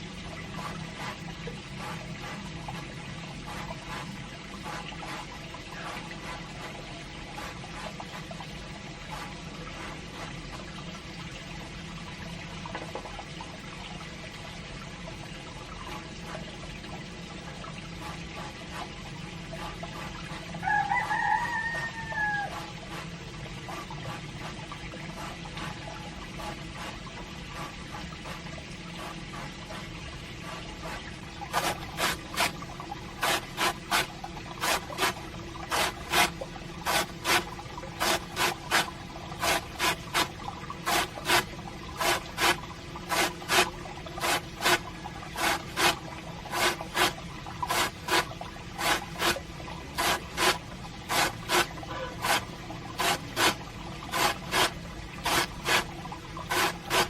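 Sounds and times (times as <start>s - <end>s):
hiss of water: 0.0s - 10.7s, 18.0s - 57.0s
rooster crowing: 20.6s - 22.6s
sharp irregular strokes: 30.5s - 57.0s.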